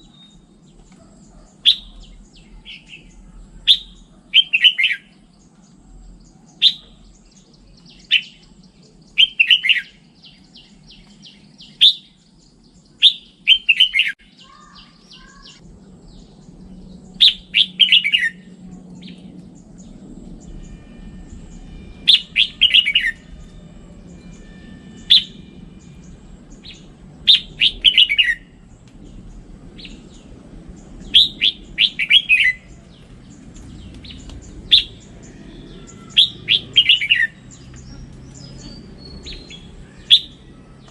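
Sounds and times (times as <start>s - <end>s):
bird singing warbled phrases: 0.0s - 40.9s
faint low rumble: 14.3s - 40.9s.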